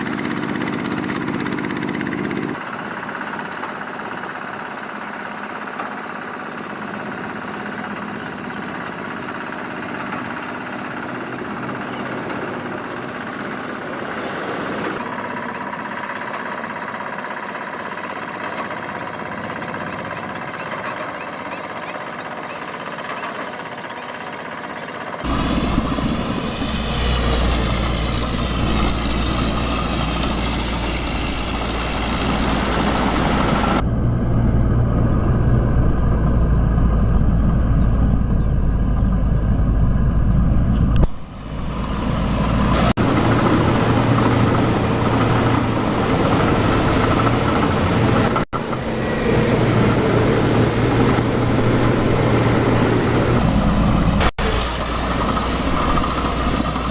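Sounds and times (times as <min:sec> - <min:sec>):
tractor engines under load: 0:00.0 - 0:33.8, 0:40.6 - 0:56.9
high whine: 0:25.2 - 0:56.9.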